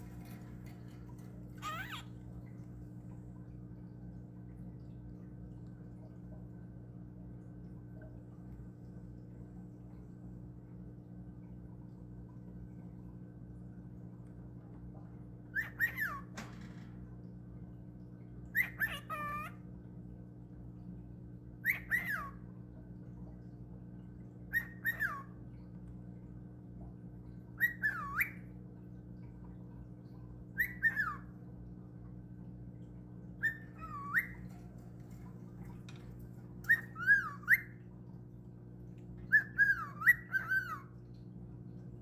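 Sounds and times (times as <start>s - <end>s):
cockatiel whistling: 30.6s - 31.2s, 33.4s - 34.5s, 36.6s - 37.8s, 39.3s - 40.9s.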